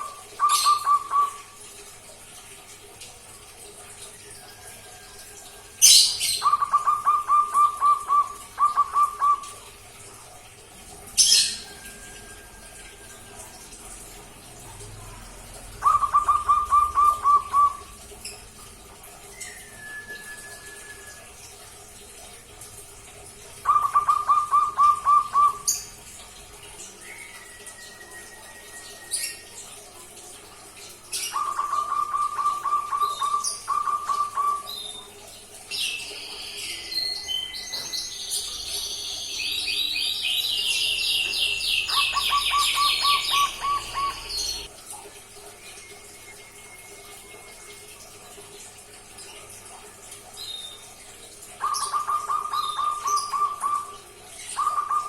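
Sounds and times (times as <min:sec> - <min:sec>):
bird chirping: 0:00.4 - 0:01.4, 0:35.8 - 0:44.7
dove chick trilled cooing: 0:15.7 - 0:18.0, 0:41.8 - 0:44.7, 0:54.6 - 0:55.0
faint whistled tones: 0:19.3 - 0:21.4, 0:45.8 - 0:47.7.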